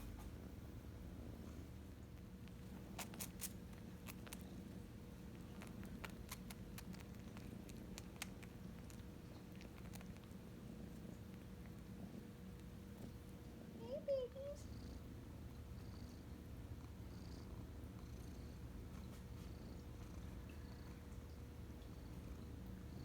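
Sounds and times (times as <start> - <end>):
kitten purring: 0.0 - 23.0
small clicks and smacks: 2.1 - 13.2.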